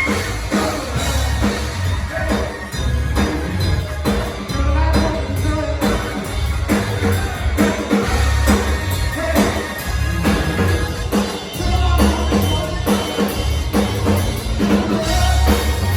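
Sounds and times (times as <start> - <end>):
drum kit beat: 0.0 - 15.9
live rock band playing: 0.0 - 15.9
person singing: 14.6 - 15.9.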